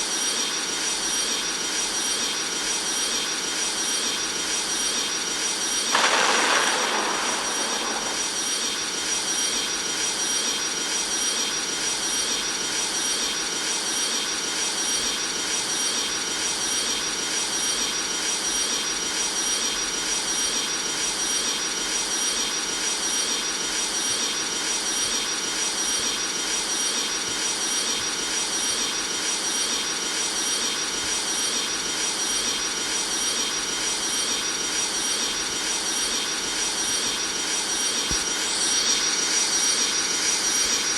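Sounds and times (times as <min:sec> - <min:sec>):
jet engines heard from cabin: 0:05.9 - 0:10.0.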